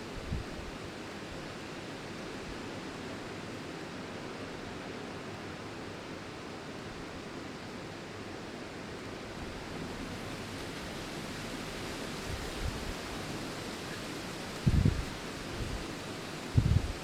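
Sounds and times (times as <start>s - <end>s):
wind rustling tree leaves: 0.0s - 17.0s
wind gusts rumbling on microphone: 0.1s - 0.8s, 12.2s - 13.5s, 14.2s - 17.0s.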